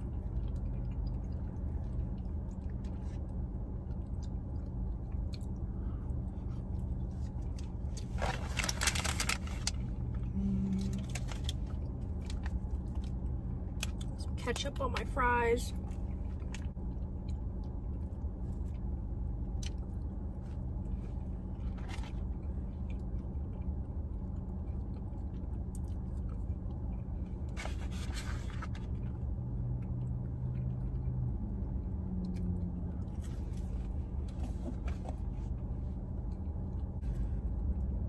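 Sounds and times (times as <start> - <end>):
person chewing food: 0.0 - 8.5, 15.9 - 34.7
parked car low hum: 0.0 - 38.0
food packaging rustling: 8.0 - 9.9.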